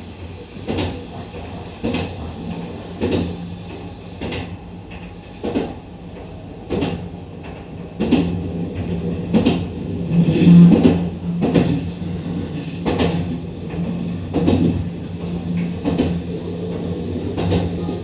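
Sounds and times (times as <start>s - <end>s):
train wheels knocking over rail joints: 0.6s - 5.8s, 10.4s - 11.9s, 12.7s - 17.9s.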